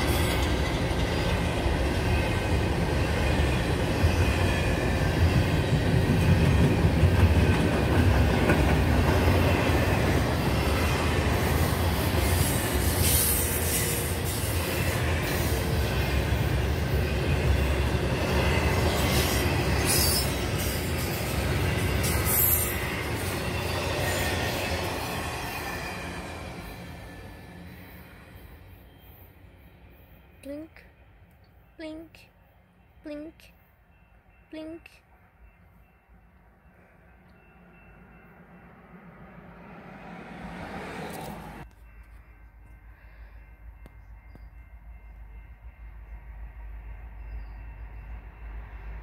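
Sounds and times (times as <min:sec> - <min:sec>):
train wheels on rail: 0:00.0 - 0:29.1, 0:35.8 - 0:49.0.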